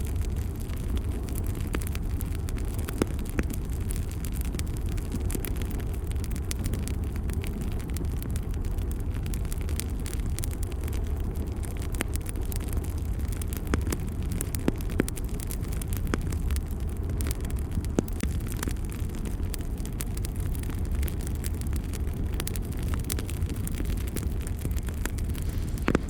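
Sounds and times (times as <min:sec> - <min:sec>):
fire crackling and popping: 0:00.0 - 0:26.0
fire rumbling in fireplace: 0:00.0 - 0:26.0.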